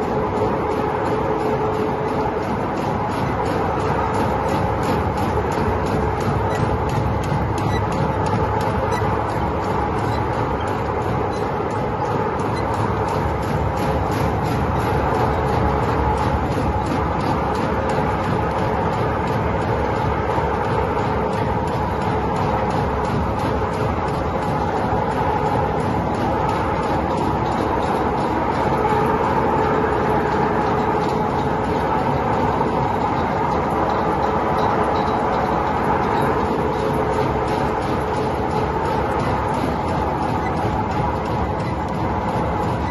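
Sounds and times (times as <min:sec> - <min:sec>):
industrial machinery din: 0:00.0 - 0:42.9
machinery knocks and clatter: 0:00.0 - 0:42.9.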